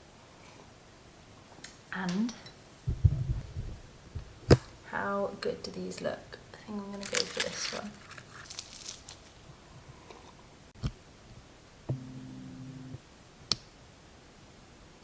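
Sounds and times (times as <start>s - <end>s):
low hum: 2.9s - 4.5s, 11.8s - 13.1s.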